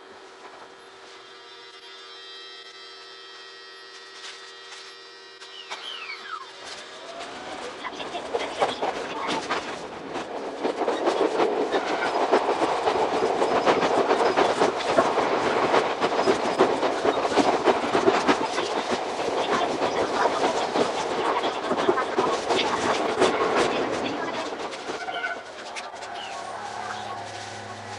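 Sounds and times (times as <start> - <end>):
train wheels clattering over rails: 6.6 - 27.9.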